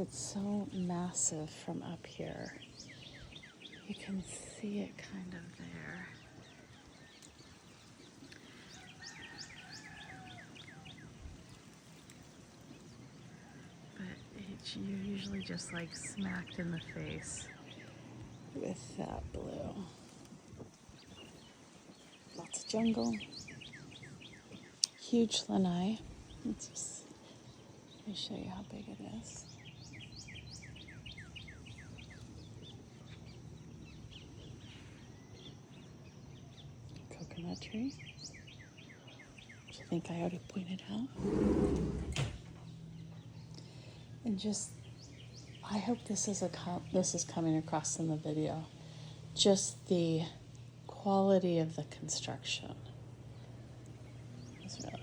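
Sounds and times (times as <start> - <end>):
birds chirping: 0.0 - 55.0
low background rumble: 0.0 - 55.0
outdoor hiss: 0.0 - 55.0
bird chirping: 5.1 - 19.8, 53.3 - 55.0.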